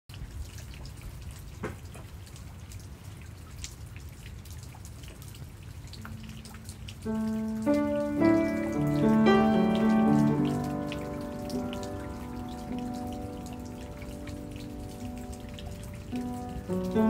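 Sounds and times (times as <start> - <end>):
rain drops tapping: 0.1 - 17.0
soft music with held notes: 7.1 - 17.0.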